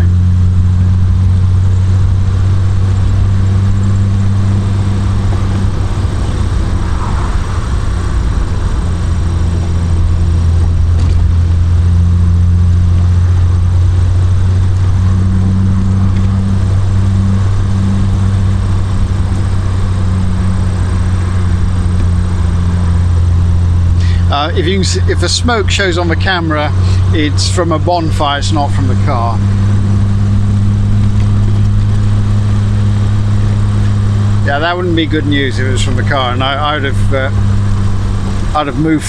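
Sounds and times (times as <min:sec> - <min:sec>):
car engine cruising: 0:00.0 - 0:39.0.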